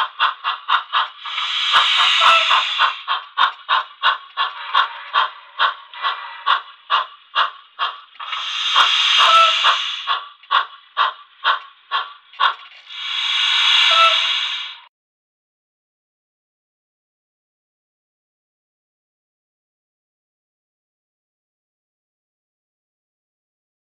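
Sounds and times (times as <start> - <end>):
steam hiss: 0.0 - 14.9
steam locomotive chuffs from speaker: 0.0 - 14.9.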